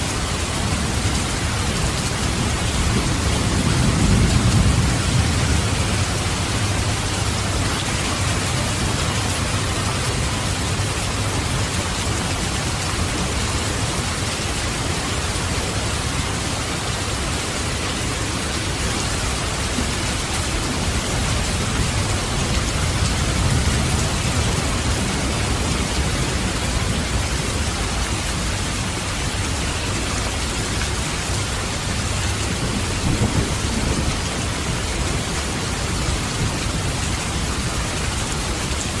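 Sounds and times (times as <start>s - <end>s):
heavy rain falling: 0.0s - 39.0s
distant thunder rumbling: 1.8s - 10.8s.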